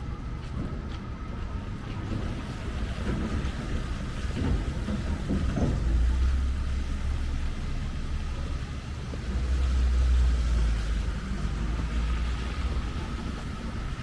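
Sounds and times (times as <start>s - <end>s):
street traffic rumbling: 0.0s - 14.0s
vehicle approaching: 0.0s - 14.0s.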